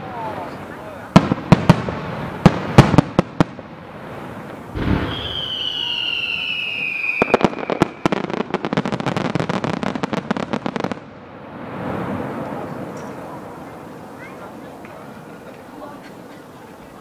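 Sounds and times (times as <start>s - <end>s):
rapid firework crackling: 0.0s - 15.8s
fireworks bangs: 0.0s - 17.0s
firework whistle falling in pitch: 4.8s - 8.3s.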